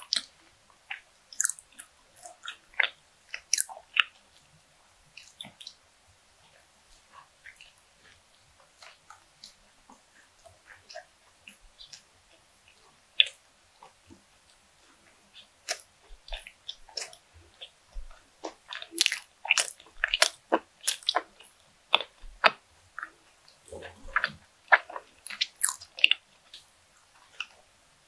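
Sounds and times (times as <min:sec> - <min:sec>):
close-miked chewing: 0:00.0 - 0:28.0.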